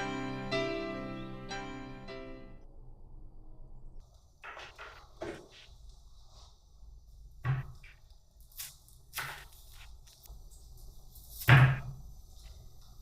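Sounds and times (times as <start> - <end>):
knocks and thumps: 7.4 - 7.9.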